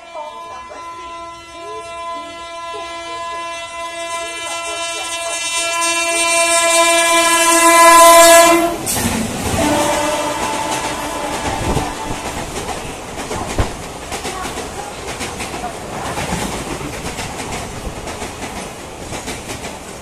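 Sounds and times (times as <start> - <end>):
locomotive horn blast: 0.0 - 12.6
train wheels clattering on rails: 8.3 - 20.0.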